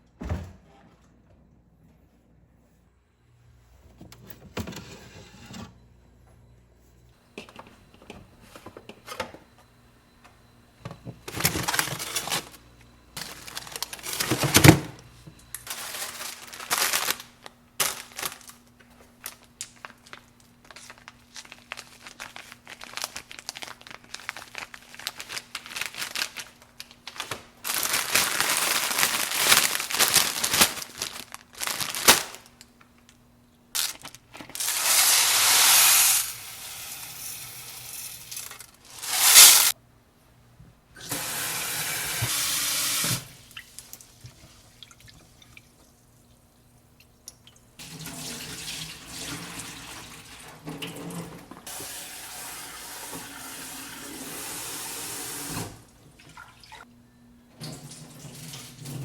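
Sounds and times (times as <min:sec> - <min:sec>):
plastic packaging crinkling: 0:11.2 - 0:12.6, 0:13.2 - 0:14.7, 0:15.5 - 0:36.0, 0:38.3 - 0:39.8.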